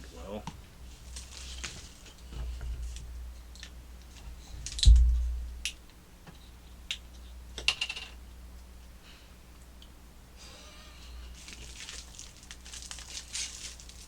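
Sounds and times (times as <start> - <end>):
heavy low thump: 4.8 - 5.6.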